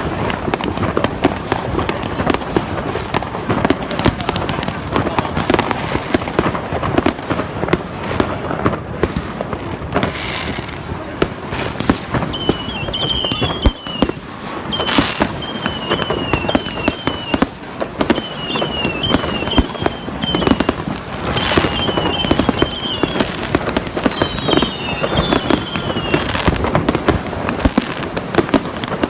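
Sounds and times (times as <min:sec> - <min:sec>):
fireworks bangs and crackles: 0:00.0 - 0:29.0
falling firework whistles: 0:11.6 - 0:26.6.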